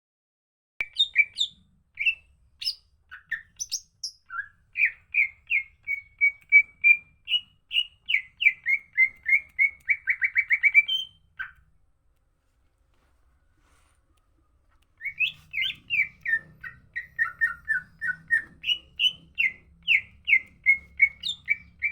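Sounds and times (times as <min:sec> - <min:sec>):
bird singing whistled notes: 0:00.8 - 0:11.6, 0:14.5 - 0:21.9.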